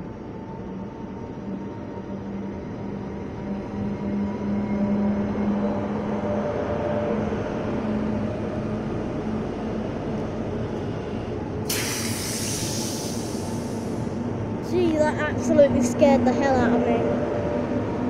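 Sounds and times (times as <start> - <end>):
electric train rumbling past: 0.0 - 18.0
sudden hiss: 11.7 - 14.1.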